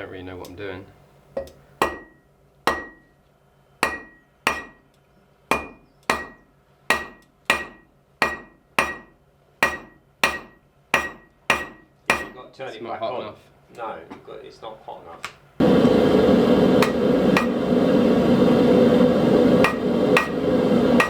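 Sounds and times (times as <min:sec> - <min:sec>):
hammer striking metal on anvil: 0:01.4 - 0:03.1, 0:03.8 - 0:04.9, 0:05.5 - 0:12.4, 0:19.6 - 0:21.0.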